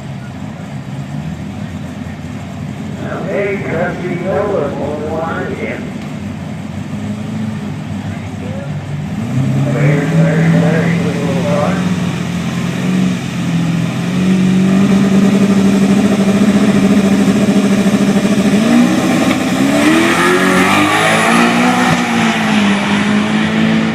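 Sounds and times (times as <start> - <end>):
car engine revving: 0.0 - 23.9.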